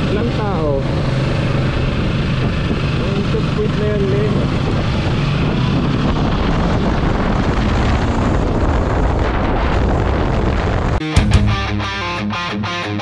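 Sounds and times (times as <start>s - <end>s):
road noise: 0.0s - 11.0s
wind buffeting microphone: 0.0s - 11.0s
motorcycle engine: 0.0s - 13.0s
rock music with electric guitar: 11.0s - 13.0s.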